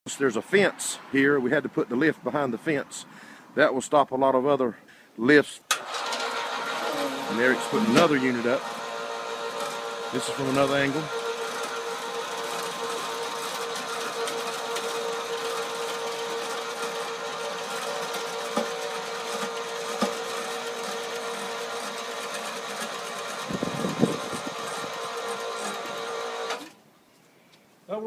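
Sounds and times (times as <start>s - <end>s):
electric lift motor whining: 5.7s - 26.8s.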